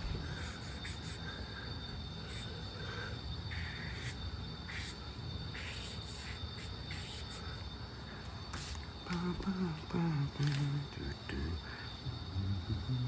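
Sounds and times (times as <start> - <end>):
pencil scratching on paper: 0.0 - 1.4, 2.3 - 7.6.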